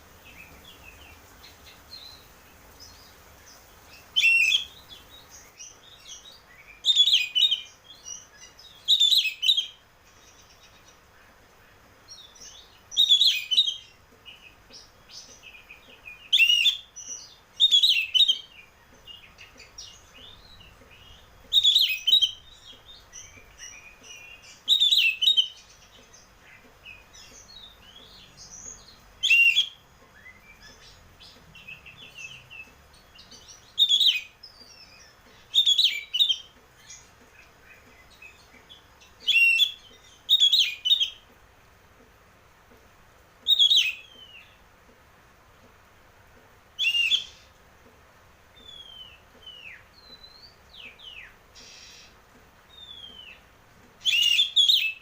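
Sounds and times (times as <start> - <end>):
bird twittering: 0.2 - 7.7, 15.2 - 26.1, 27.2 - 38.5, 39.2 - 41.2, 43.4 - 44.5, 46.8 - 47.5, 48.6 - 53.4, 54.0 - 55.0
bird whistled phrases: 54.0 - 55.0.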